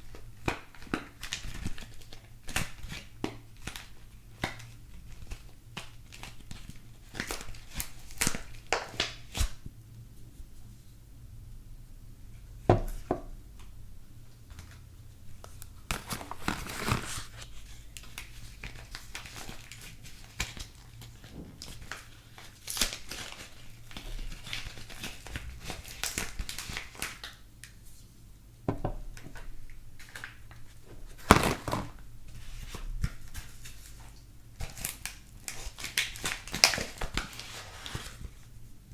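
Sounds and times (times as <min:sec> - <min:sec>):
wrapping crinkling and tearing: 0:00.0 - 0:09.6, 0:14.5 - 0:28.0, 0:29.3 - 0:38.6.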